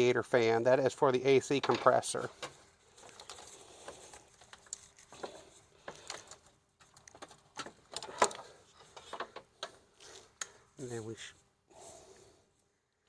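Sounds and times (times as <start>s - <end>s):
plastic parts clicking and tapping: 1.6s - 9.8s.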